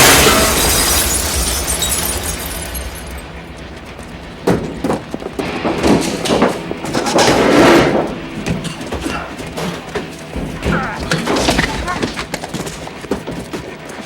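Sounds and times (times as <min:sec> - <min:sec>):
explosion: 0:00.0 - 0:08.4
debris and glass crackling: 0:00.0 - 0:13.1
sharp knocks and impacts: 0:00.0 - 0:13.5.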